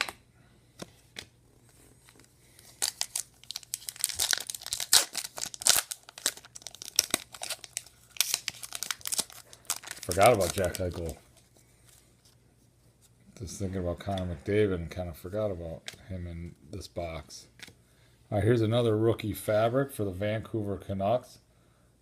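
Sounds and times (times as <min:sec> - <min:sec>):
plastic packaging crinkling and tearing: 0:02.0 - 0:12.0.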